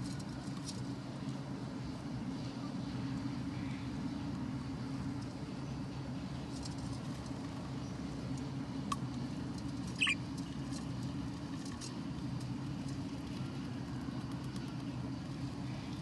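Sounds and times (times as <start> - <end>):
steady low hum: 0.0 - 16.0
bird chicks cheeping: 9.8 - 10.4.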